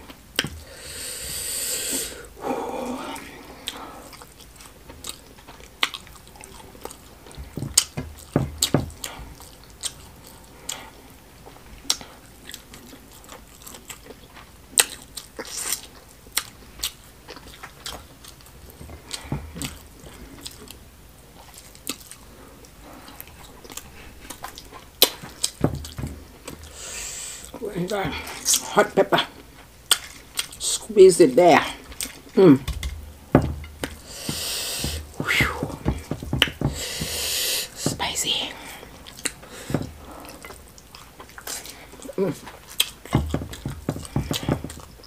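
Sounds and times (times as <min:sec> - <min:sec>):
chewing and biting food: 0:03.2 - 0:28.7, 0:29.3 - 0:30.6, 0:31.8 - 0:35.2, 0:38.6 - 0:45.0
soft low thumps: 0:07.3 - 0:09.4, 0:25.4 - 0:26.7, 0:32.6 - 0:38.2, 0:39.6 - 0:40.1, 0:43.1 - 0:45.0.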